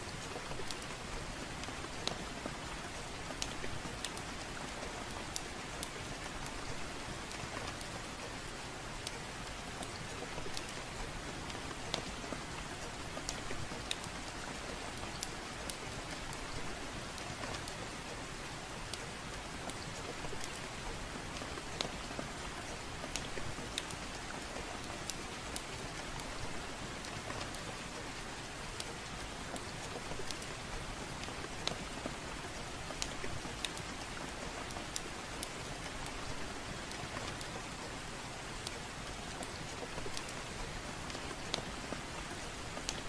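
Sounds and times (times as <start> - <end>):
soft steady rain: 0.0 - 43.0
fire crackling and popping: 8.9 - 20.8, 21.4 - 43.0.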